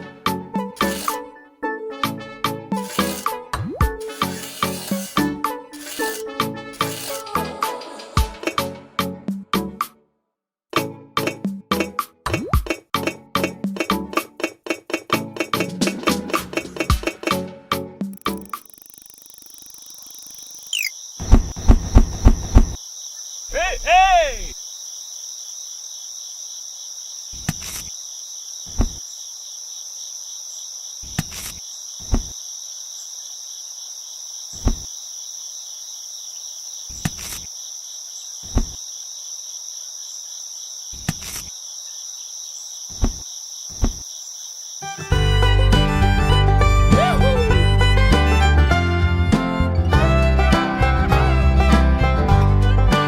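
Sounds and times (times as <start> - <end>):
insects chirring: 0.8 - 1.3, 2.7 - 7.4, 18.1 - 45.1
sharp clicks: 18.1 - 20.9.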